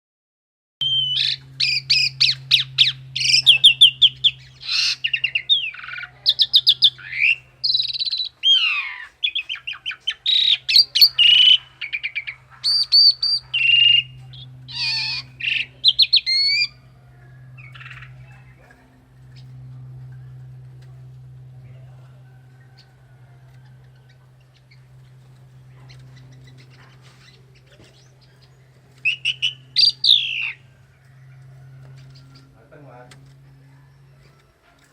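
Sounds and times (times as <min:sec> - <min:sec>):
low steady hum: 0:00.8 - 0:34.9
songbird singing: 0:00.8 - 0:34.9.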